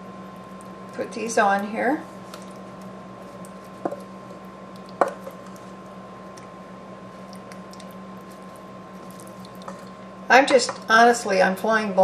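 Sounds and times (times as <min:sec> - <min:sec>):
steady hum: 0:00.0 - 0:12.0
squishy food handling: 0:02.0 - 0:10.2.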